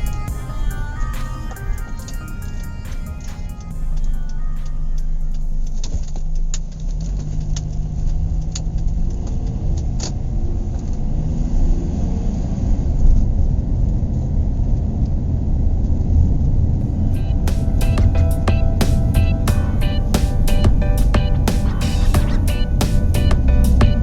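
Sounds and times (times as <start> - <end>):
car road and engine rumble: 0.0 - 24.0.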